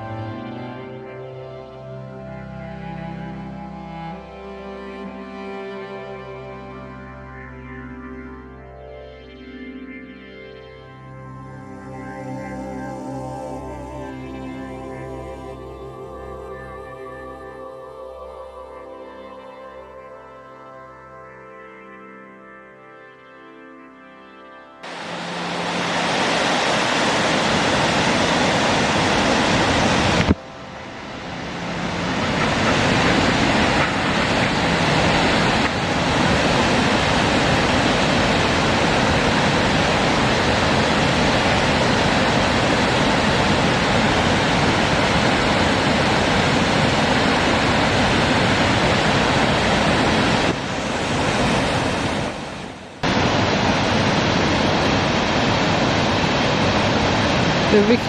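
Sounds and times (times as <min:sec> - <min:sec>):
waterfall rushing: 0:24.8 - 0:58.0.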